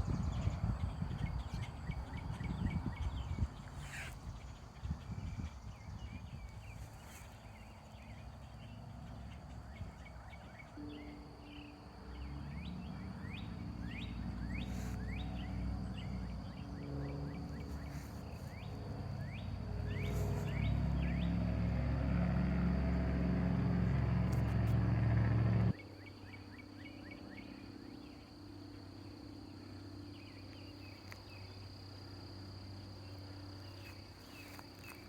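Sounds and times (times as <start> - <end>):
birds chirping: 0.0 - 27.6
low engine hum: 0.0 - 35.0.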